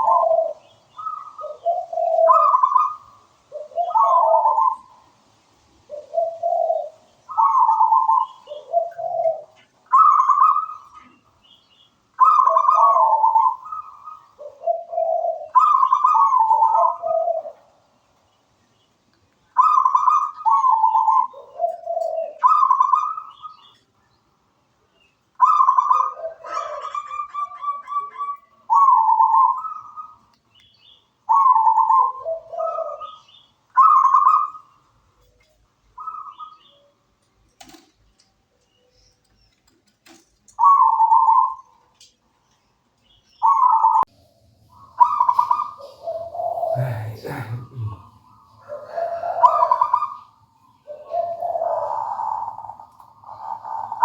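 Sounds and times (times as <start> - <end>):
dove cooing: 0.0 - 5.0, 5.9 - 11.2, 12.2 - 17.7, 19.6 - 23.4, 25.4 - 30.2, 31.3 - 34.7, 40.6 - 41.7, 43.4 - 54.0.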